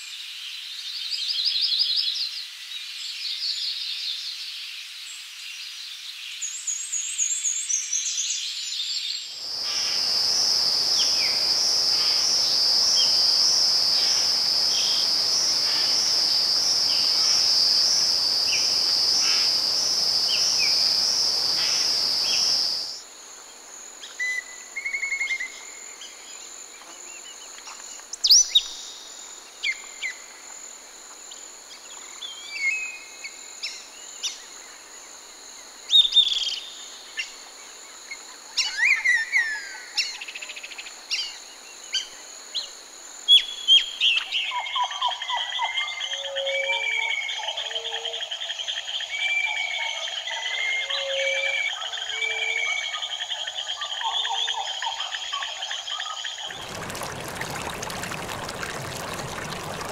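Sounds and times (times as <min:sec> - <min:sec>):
insect chorus with pulsing trill: 0:08.2 - 0:59.9
insect hum: 0:09.3 - 0:59.9.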